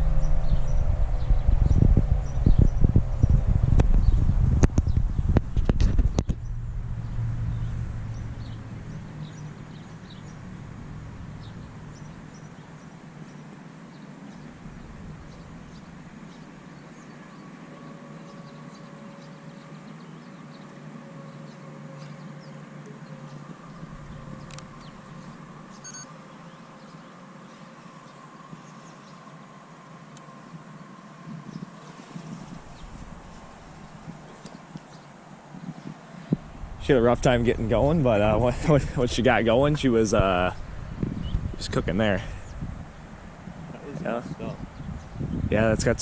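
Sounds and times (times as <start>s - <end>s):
distant mechanical warning siren: 0.0s - 5.4s, 6.2s - 38.3s
low rumble: 0.0s - 13.3s, 14.5s - 16.2s, 23.1s - 25.9s, 31.3s - 34.5s, 36.3s - 46.0s
small bird chirps: 24.4s - 27.1s.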